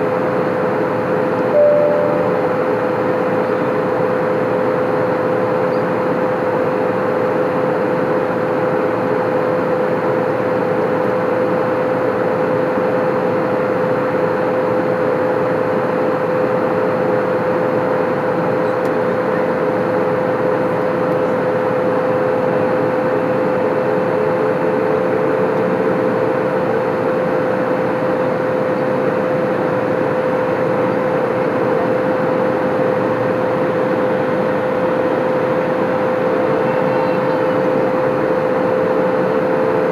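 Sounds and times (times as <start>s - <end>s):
lower wavering tone: 1.6s - 2.7s
steady tone: 1.6s - 2.7s.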